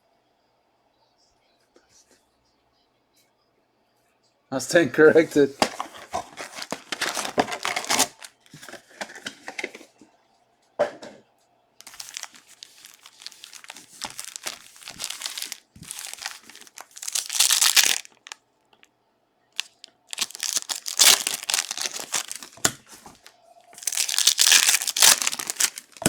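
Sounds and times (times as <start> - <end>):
foil wrappers tearing and crinkling: 5.6 - 8.8, 11.8 - 18.4, 19.6 - 26.0.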